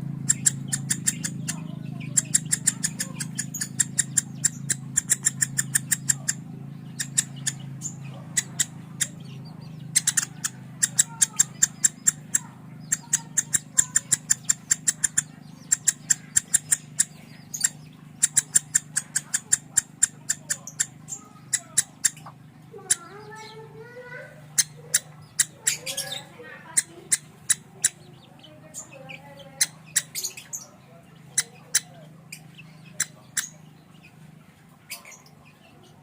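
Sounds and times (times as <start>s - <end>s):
steady low hum: 0.0s - 36.0s
lovebird chirping rapidly: 0.1s - 36.0s.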